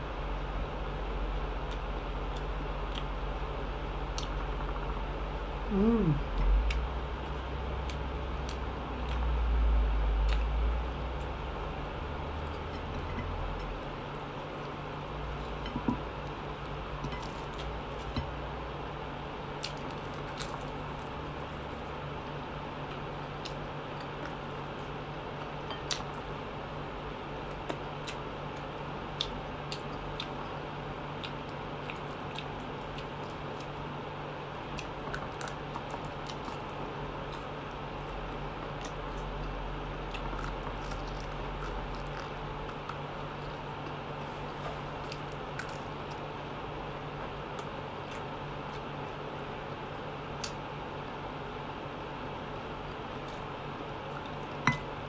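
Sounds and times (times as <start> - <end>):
steady low hum: 0.0 - 55.0
chewing with wet mouth clicks: 27.5 - 30.6, 31.2 - 33.8.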